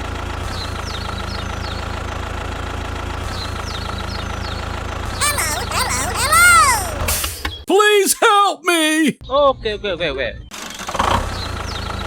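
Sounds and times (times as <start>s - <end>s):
high squeaky voice: 5.2s - 7.1s, 7.7s - 9.2s.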